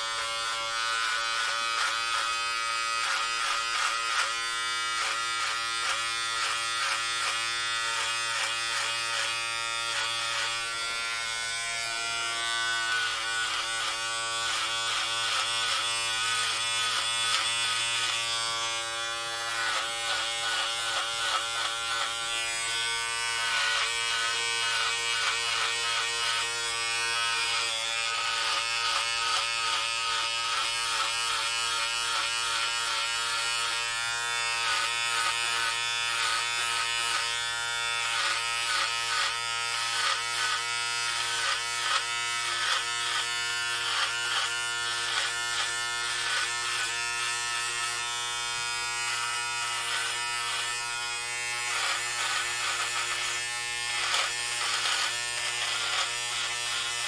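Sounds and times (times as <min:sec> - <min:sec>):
electric hair clippers buzzing: 0:00.0 - 0:57.0.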